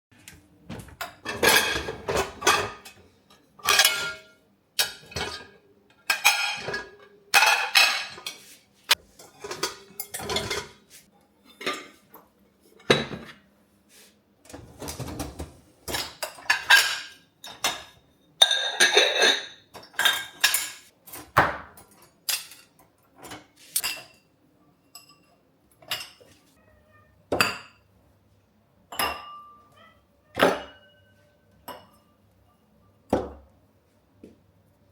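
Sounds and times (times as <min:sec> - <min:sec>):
dishes and cutlery clattering: 0:00.7 - 0:13.5, 0:14.5 - 0:26.5, 0:27.3 - 0:27.9, 0:28.8 - 0:33.5.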